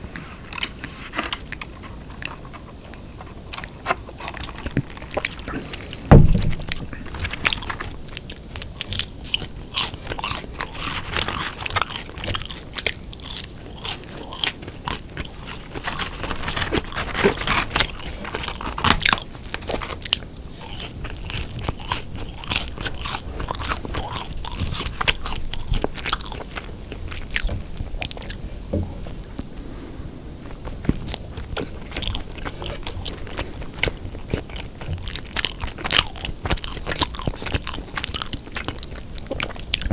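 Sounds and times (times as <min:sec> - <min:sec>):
person chewing burger crunchily: 0:00.0 - 0:39.9
heavy low bump: 0:06.1 - 0:07.1.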